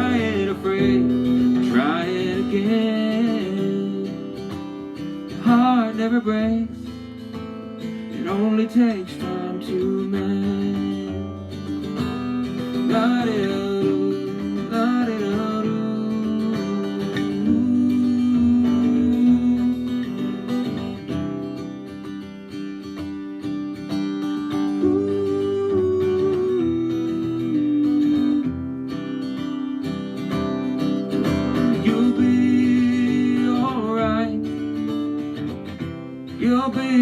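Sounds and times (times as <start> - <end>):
electric guitar instrumental: 0.0 - 37.0.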